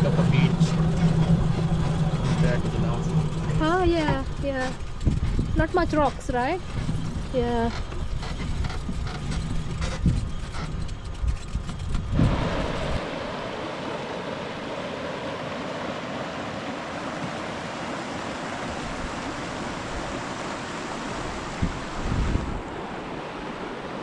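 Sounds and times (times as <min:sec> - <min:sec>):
low wind rumble: 0:00.0 - 0:24.0
river water flowing: 0:12.2 - 0:24.0.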